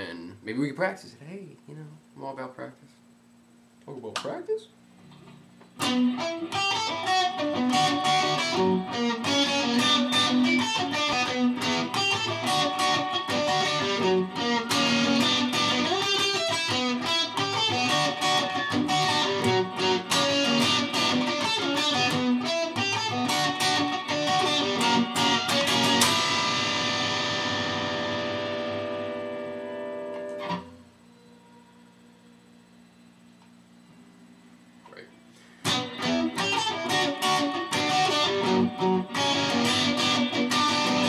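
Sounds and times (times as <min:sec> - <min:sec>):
guitar chord ringing: 0:05.8 - 0:30.8, 0:35.6 - 0:41.0
guitar picked notes: 0:05.8 - 0:30.8, 0:35.6 - 0:41.0.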